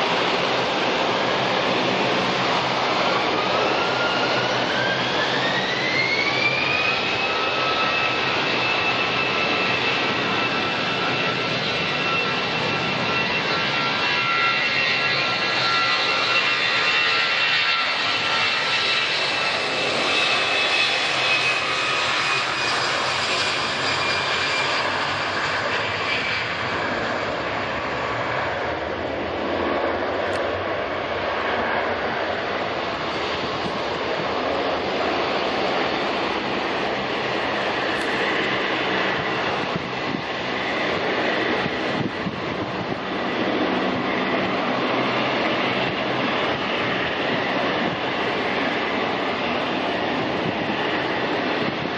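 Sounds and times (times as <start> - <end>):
high whining engine tones: 0.0 - 51.9
jet engine rush: 0.0 - 51.9.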